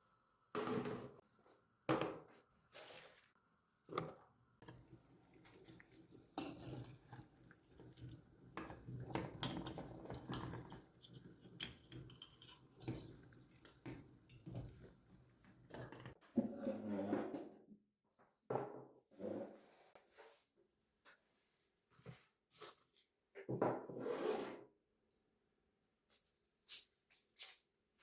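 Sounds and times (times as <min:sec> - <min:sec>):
dishes and utensils clinking: 0:04.0 - 0:16.2.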